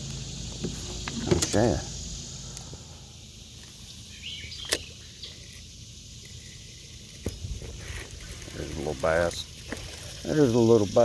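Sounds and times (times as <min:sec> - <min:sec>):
creek hiss: 0:00.0 - 0:11.0
sharp click: 0:04.6 - 0:04.9.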